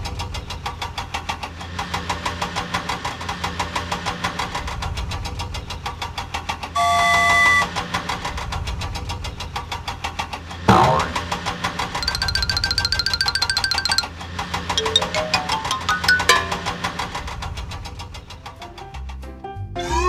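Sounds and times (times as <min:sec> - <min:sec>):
steady beep: 0:06.8 - 0:07.7
cartoon engine chugging: 0:12.0 - 0:14.1.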